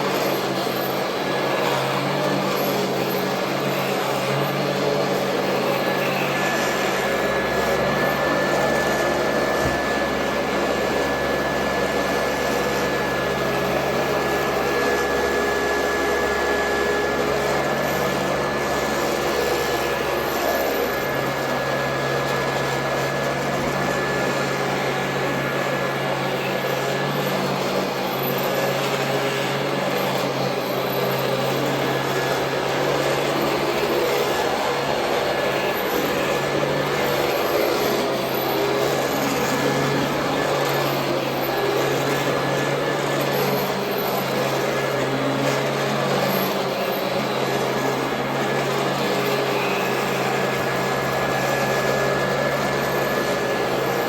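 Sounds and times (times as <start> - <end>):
vacuum cleaner running with whine: 0.0 - 54.0.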